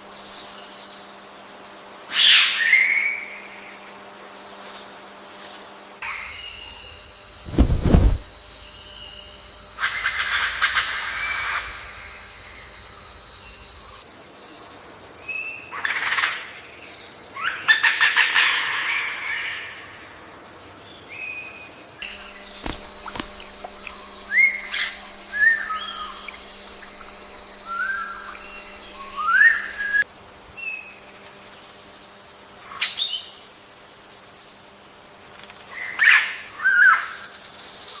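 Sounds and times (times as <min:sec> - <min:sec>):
harsh buzzy bird calls: 0:22.0 - 0:30.0
rising whistled bird chirps: 0:22.1 - 0:30.0.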